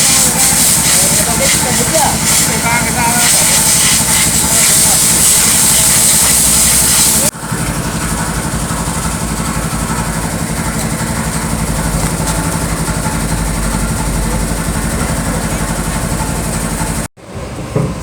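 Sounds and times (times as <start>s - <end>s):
loud hiss: 0.0s - 7.3s
motor running: 0.0s - 17.1s.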